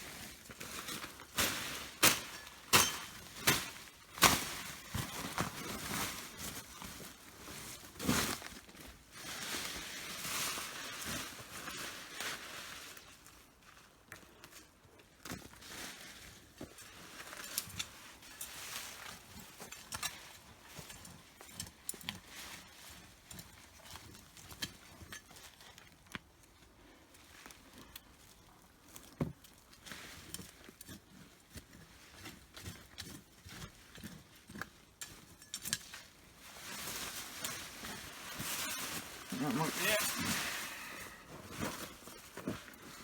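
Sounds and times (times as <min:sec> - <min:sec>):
scraping and rustling in soil: 0:00.0 - 0:26.1, 0:27.1 - 0:43.0.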